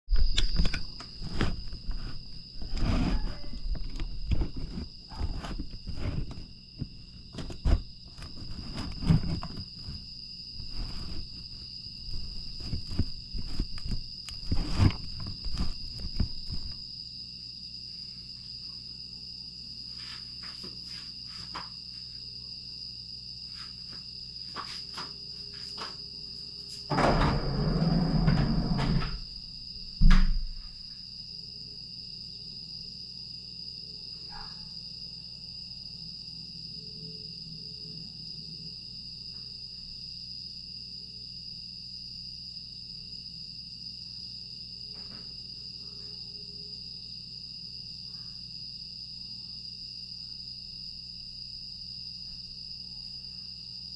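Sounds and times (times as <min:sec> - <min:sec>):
knocks and rustles: 0:00.1 - 0:16.8
crickets trilling: 0:00.1 - 0:53.9
rough rumble: 0:01.2 - 0:10.0, 0:10.6 - 0:16.8, 0:26.9 - 0:29.3.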